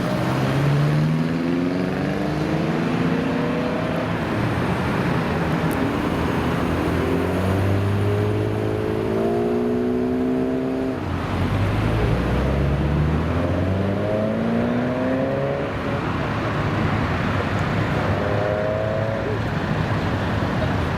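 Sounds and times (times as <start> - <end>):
idling engines rumble: 19.1 - 20.9.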